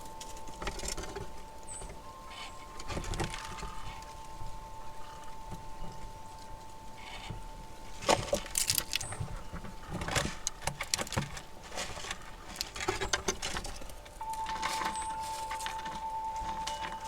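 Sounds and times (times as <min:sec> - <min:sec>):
squirrels clicking and scratching: 0:00.0 - 0:17.0
thin steady tone: 0:14.2 - 0:17.0.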